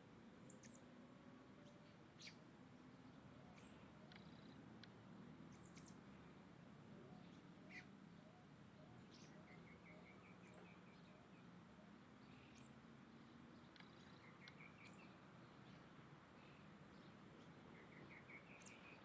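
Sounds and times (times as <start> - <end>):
birds chirping: 3.0 - 6.3, 7.1 - 19.0.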